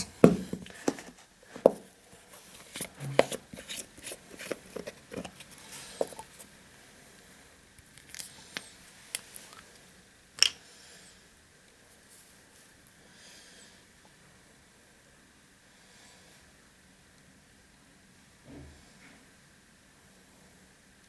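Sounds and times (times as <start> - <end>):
plastic bottles clicking: 2.6 - 6.4.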